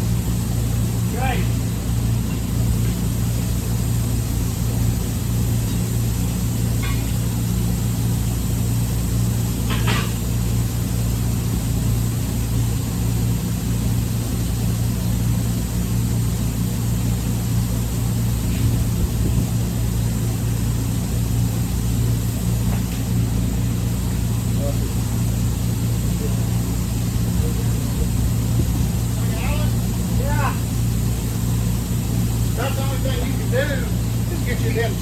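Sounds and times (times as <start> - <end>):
low machinery drone: 0.0 - 35.0.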